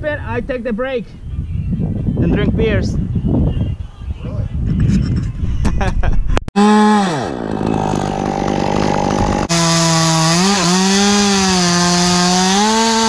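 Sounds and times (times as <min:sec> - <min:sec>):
chainsaw cutting wood: 0:06.6 - 0:13.0.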